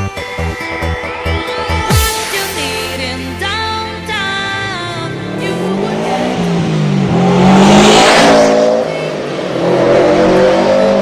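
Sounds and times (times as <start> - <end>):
car engine accelerating hard: 4.5 - 11.0.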